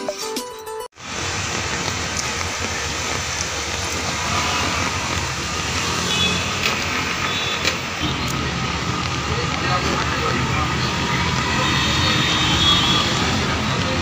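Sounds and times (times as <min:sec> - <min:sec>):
heavy rain on a street: 0:01.0 - 0:14.0.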